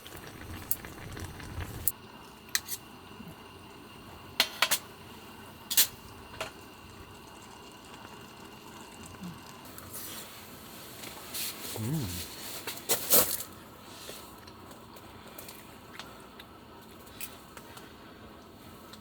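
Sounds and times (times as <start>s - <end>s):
faint steady hiss: 0.0s - 13.4s.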